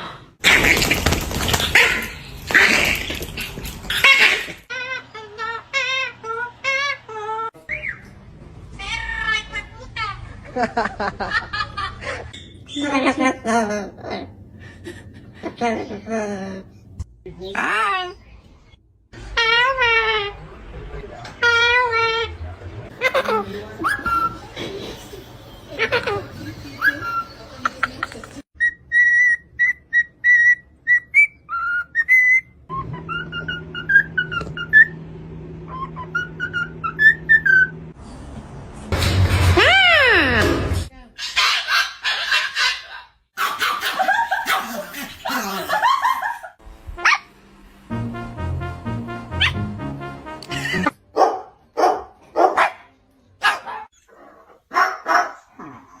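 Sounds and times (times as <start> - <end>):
parrot whistling: 28.6 - 35.0, 35.7 - 37.8
dog barking: 41.2 - 44.8, 51.2 - 53.9, 54.7 - 55.5
background music: 46.7 - 51.8.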